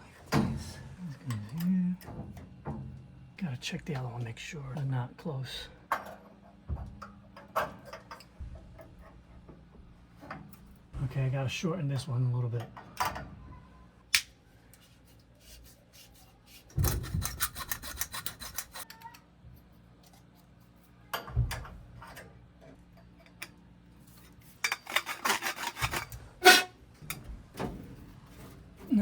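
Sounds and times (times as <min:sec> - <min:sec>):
hand tool scraping copper pipe: 0:15.4 - 0:19.0, 0:24.1 - 0:26.8.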